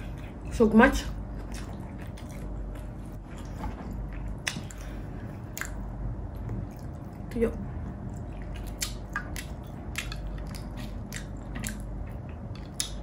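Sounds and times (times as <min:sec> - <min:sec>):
person biting and chewing food: 0:08.0 - 0:13.0.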